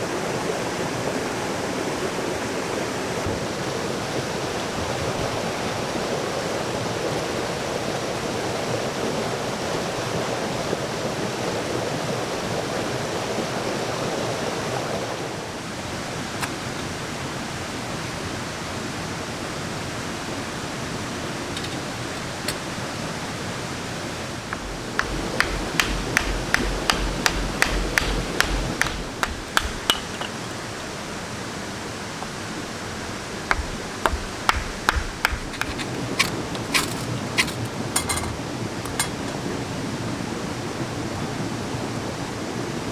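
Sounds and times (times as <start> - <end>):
sharp knocks: 24.6 - 30.6, 33.5 - 39.4.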